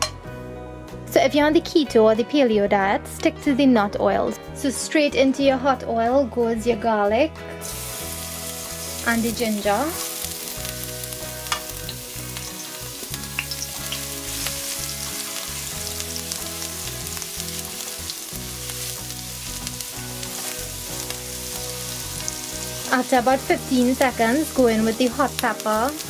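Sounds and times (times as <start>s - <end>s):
garlic sizzling in oil: 7.6s - 26.0s.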